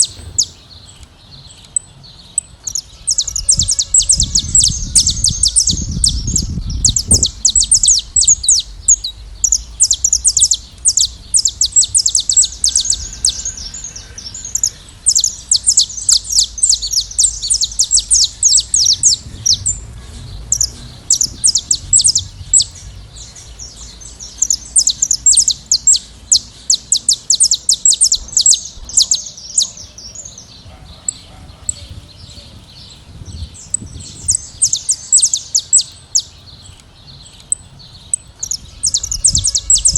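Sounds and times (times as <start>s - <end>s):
finches chirping and singing: 0.0s - 39.9s.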